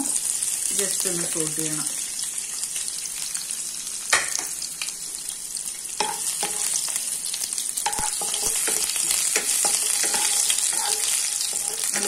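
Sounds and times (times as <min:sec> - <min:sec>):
garlic sizzling in oil: 0:00.0 - 0:12.0
spatula scraping a wok: 0:06.0 - 0:06.9, 0:07.8 - 0:12.0.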